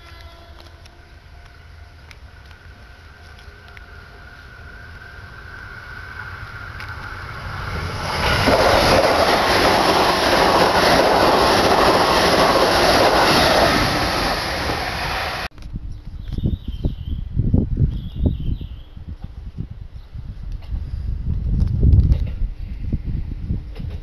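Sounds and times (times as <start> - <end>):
train wheels clattering on rails: 6.2 - 15.5, 23.7 - 24.0.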